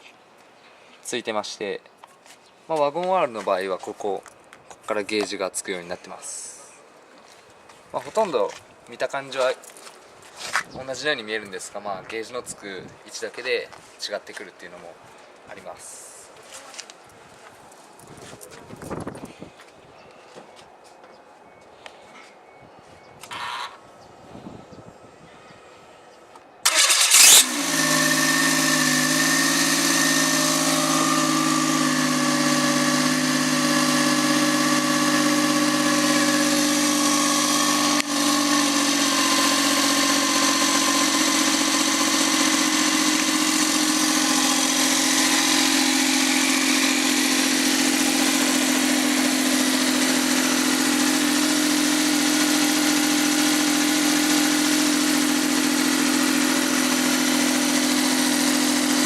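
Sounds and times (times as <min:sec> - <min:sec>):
car engine starting and idling: 0:26.6 - 0:59.0.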